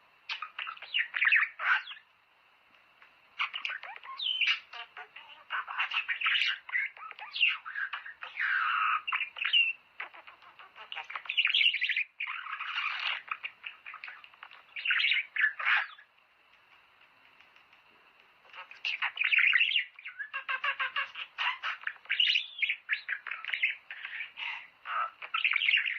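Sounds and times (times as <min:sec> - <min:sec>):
budgerigars chattering: 0:03.4 - 0:16.1, 0:18.4 - 0:25.9.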